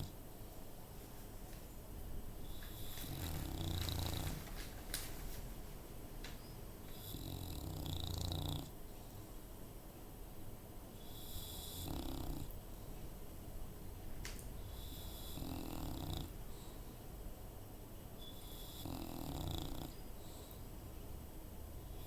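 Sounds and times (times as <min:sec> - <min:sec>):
dog snoring: 0:02.4 - 0:04.7, 0:06.9 - 0:08.8, 0:11.0 - 0:12.6, 0:14.6 - 0:16.8, 0:18.2 - 0:20.6.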